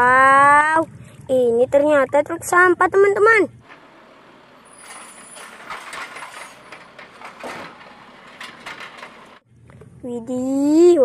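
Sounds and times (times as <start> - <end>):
garbage truck mechanical arm: 3.6 - 9.4
clatter and clicks: 4.8 - 9.4.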